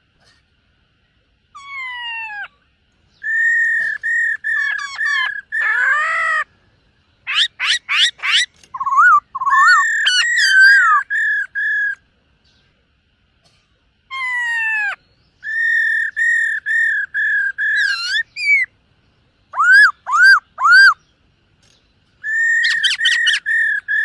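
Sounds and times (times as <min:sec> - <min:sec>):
bird singing whistled notes: 0:03.1 - 0:06.4, 0:07.2 - 0:12.8, 0:14.2 - 0:24.0.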